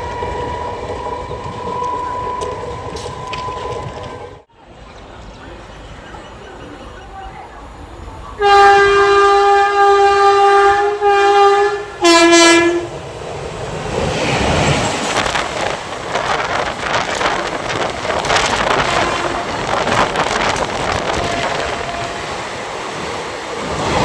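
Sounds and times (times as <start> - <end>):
train wheels clattering: 0.0 - 4.4
train horn blasts: 8.4 - 13.0, 18.7 - 19.8, 20.9 - 22.5.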